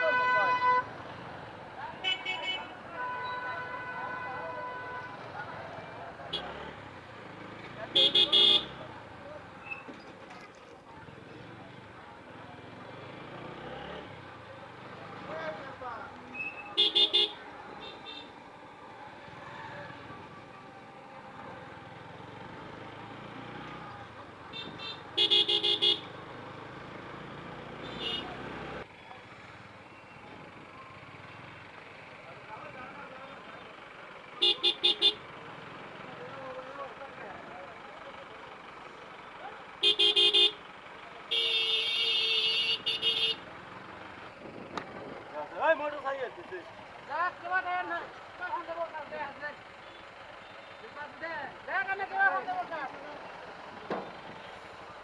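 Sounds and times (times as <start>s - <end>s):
motorcycle road and engine noise: 0.0s - 55.0s
vehicle horn short toots: 2.0s - 5.1s, 8.0s - 8.8s, 16.4s - 18.3s, 27.8s - 28.4s, 39.8s - 40.6s, 41.3s - 43.4s.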